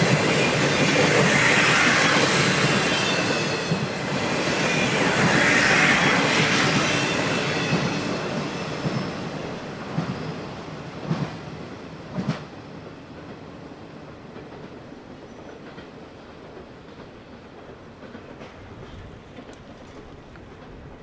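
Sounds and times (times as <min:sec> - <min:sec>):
train rumbling on rails: 0:00.0 - 0:21.0
wheels clacking over rail joints: 0:15.4 - 0:21.0.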